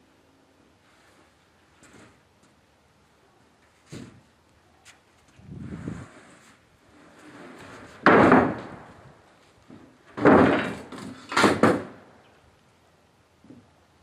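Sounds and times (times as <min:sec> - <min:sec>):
lumber banging and thudding: 0:07.0 - 0:12.2.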